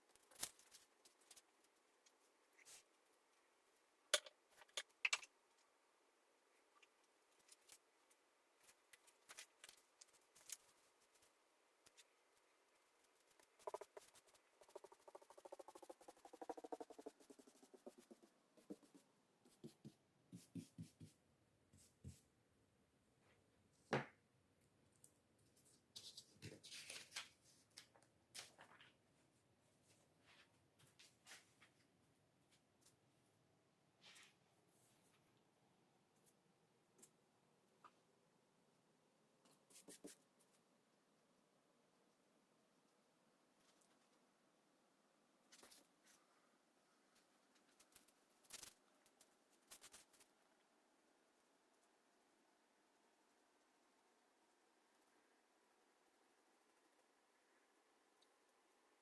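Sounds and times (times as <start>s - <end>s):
rustling and small clicks: 6.7s - 15.9s, 47.1s - 50.4s.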